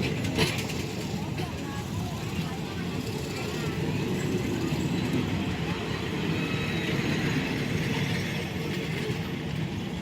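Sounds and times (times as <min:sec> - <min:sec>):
train rumbling on rails: 0:00.0 - 0:10.0.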